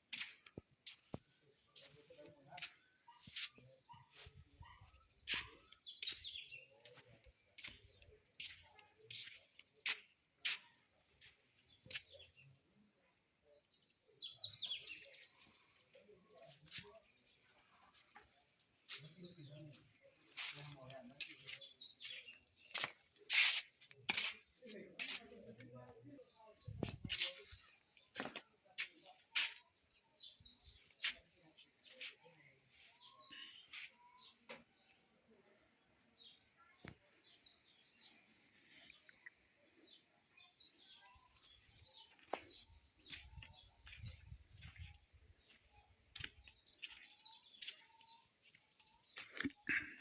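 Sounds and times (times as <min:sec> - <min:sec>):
birds chirping: 0:00.0 - 0:50.0
songbird twittering: 0:04.8 - 0:07.0, 0:29.3 - 0:50.0.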